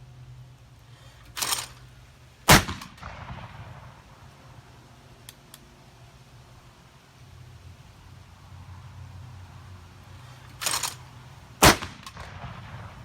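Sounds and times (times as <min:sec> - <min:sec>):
shotgun shot: 0:02.5 - 0:04.0, 0:11.6 - 0:13.0.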